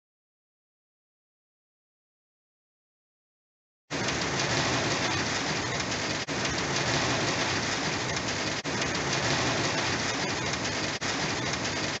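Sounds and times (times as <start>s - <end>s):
heavy rain falling: 3.9s - 12.0s.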